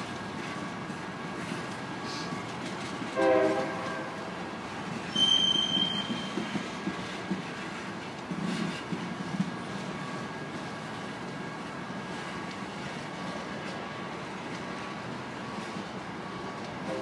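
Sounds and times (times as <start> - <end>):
freight cars rumbling on rail: 0.0 - 17.0
train horn: 3.1 - 4.4.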